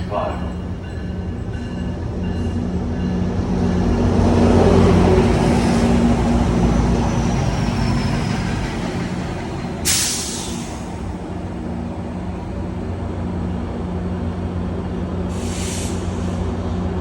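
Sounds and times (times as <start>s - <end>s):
train engine hum and rolling: 0.0s - 17.0s
air hiss: 9.8s - 10.9s, 15.3s - 16.4s.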